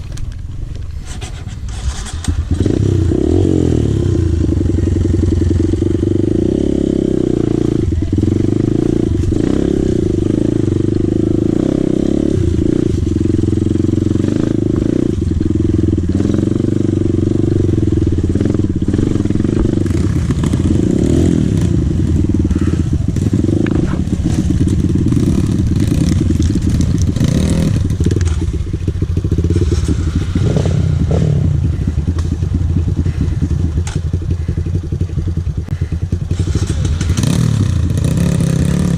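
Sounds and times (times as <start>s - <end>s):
bike knocking and rattling: 0.0s - 2.8s, 12.6s - 38.9s
dirt bike engine revving: 1.7s - 38.9s.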